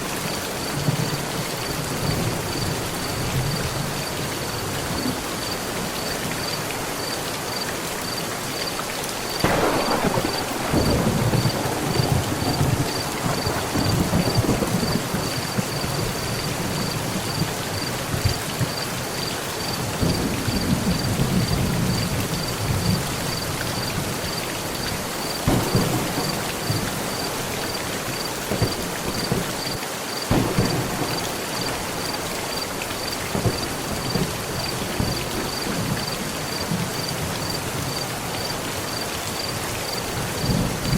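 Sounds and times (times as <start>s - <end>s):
heavy rain on a metal roof: 0.0s - 40.9s
thunder cracks and rumbles: 9.3s - 18.8s, 19.9s - 24.4s, 25.2s - 29.7s, 30.3s - 38.0s.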